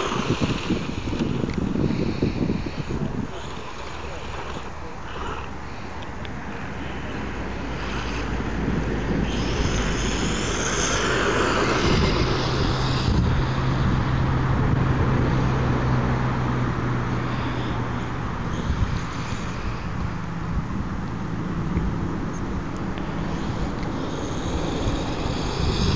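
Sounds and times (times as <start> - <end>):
rush of toy truck running: 0.0 - 5.5, 7.6 - 14.4, 18.5 - 20.2, 23.2 - 25.9
high electric motor whine: 0.0 - 25.9
steady low hum: 0.0 - 25.9.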